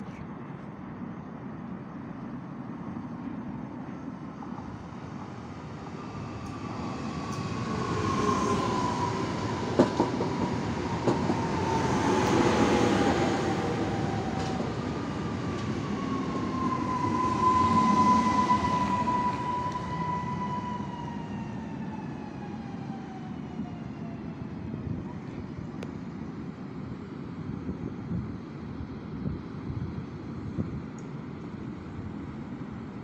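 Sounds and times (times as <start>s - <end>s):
train wheels rumbling: 3.2s - 23.8s.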